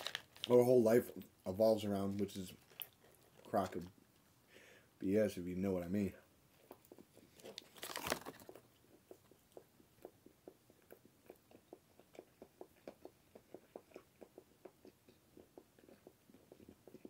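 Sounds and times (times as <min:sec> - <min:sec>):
chewing with wet mouth clicks: 0:06.5 - 0:17.0.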